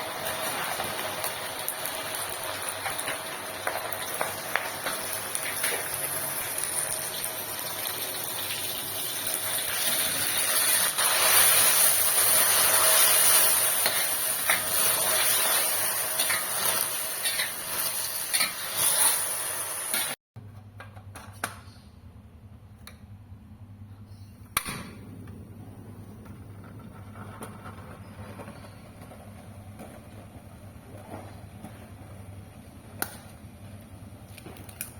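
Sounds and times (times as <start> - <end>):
low hum: 21.8 - 34.2.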